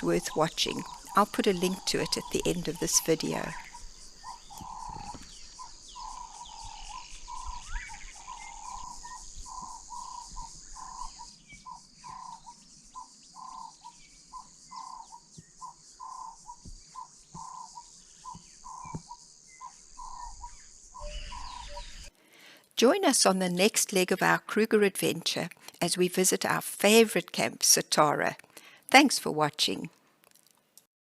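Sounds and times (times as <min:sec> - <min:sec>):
night insects trilling: 0:00.0 - 0:22.1.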